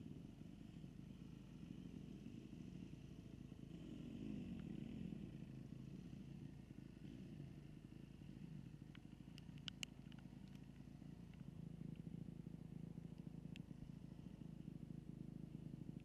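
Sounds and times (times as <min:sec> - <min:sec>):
dirt bike engine humming: 0:00.0 - 0:16.0
sharp clicks: 0:08.9 - 0:11.4.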